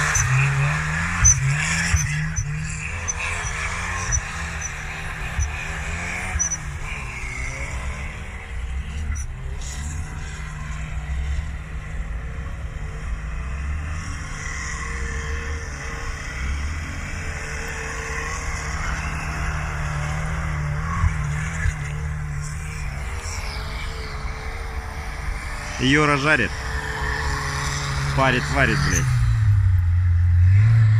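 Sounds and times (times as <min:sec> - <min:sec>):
car engine drone: 0:00.0 - 0:30.9.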